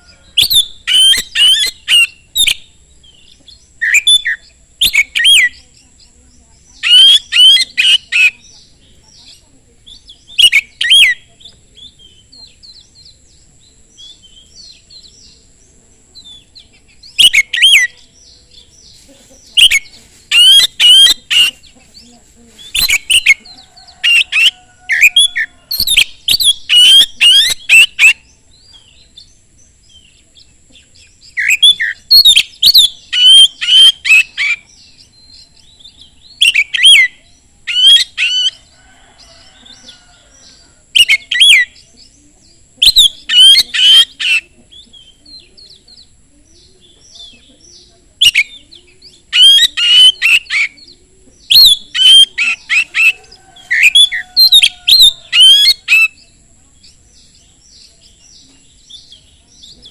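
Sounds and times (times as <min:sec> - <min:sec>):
soft bird twittering: 0:00.0 - 0:59.9
bird singing whistled phrases: 0:00.3 - 0:05.6, 0:06.8 - 0:08.6, 0:09.9 - 0:11.2, 0:17.1 - 0:18.0, 0:19.6 - 0:21.5, 0:24.1 - 0:28.3, 0:31.3 - 0:38.6, 0:42.8 - 0:45.5, 0:47.7 - 0:56.3.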